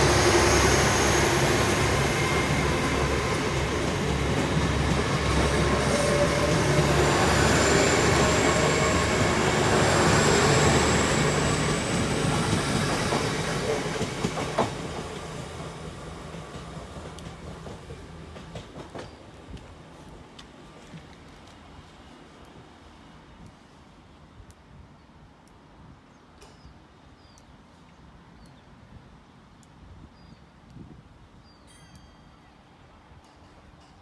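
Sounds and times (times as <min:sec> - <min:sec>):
train high whine: 0:00.0 - 0:23.4
diesel train passing: 0:00.0 - 0:24.3.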